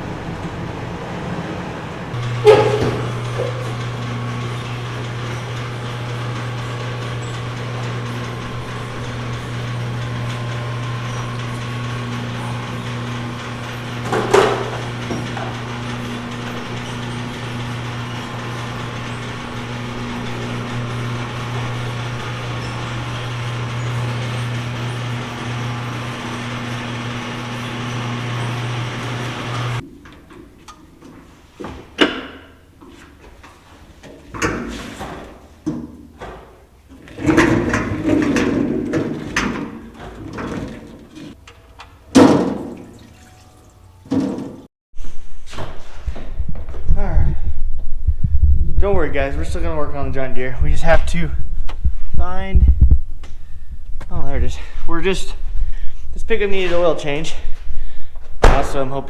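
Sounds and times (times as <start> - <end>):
machine humming: 0.0 - 29.8
knocks and clatter: 0.1 - 30.9, 31.6 - 43.2.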